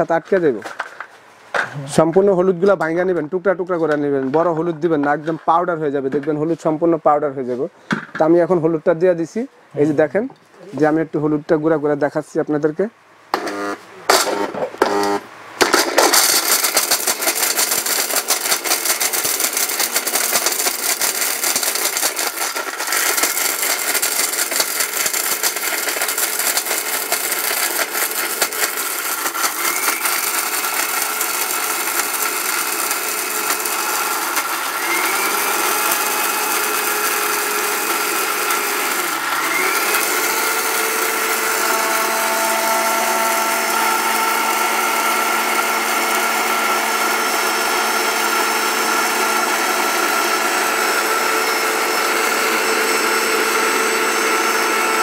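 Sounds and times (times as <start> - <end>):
electric mixer grinder whining: 13.3 - 55.0
hard pieces clattering in jug: 15.6 - 35.2.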